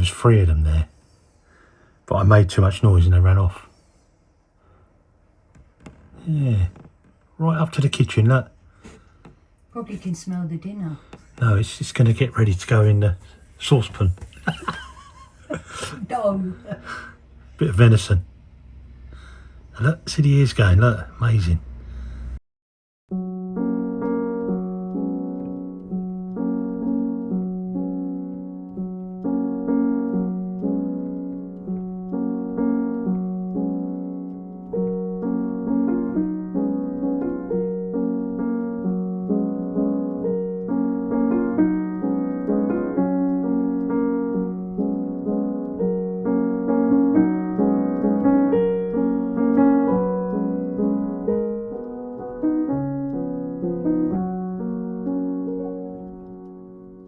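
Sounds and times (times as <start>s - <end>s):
gentle piano melody: 23.1s - 57.0s.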